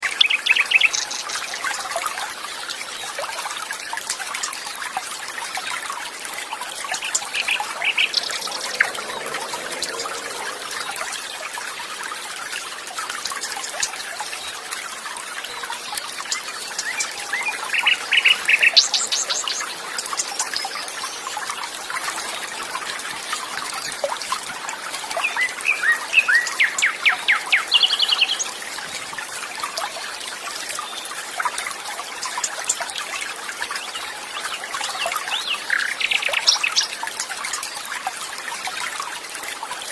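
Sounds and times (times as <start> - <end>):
water trickling: 0.0 - 39.9
birds chirping and trilling: 6.2 - 12.8, 15.3 - 24.0, 25.1 - 28.6, 33.8 - 37.0.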